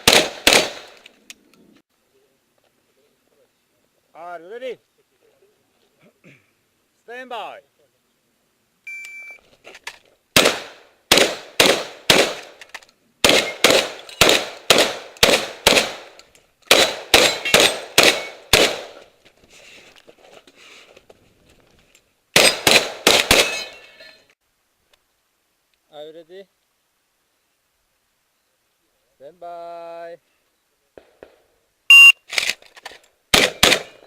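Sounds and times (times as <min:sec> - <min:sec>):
shotgun firing rapid shots: 0:00.0 - 0:01.0, 0:10.4 - 0:12.6, 0:13.2 - 0:16.1, 0:16.7 - 0:19.0, 0:22.4 - 0:23.6, 0:33.3 - 0:34.0
shot timer beep: 0:08.9 - 0:09.4, 0:31.9 - 0:32.2.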